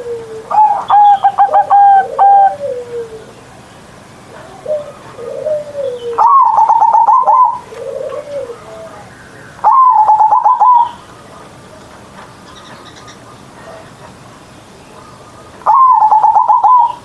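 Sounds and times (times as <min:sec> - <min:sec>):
dove cooing: 0:00.0 - 0:03.4, 0:04.3 - 0:11.0, 0:15.0 - 0:17.0.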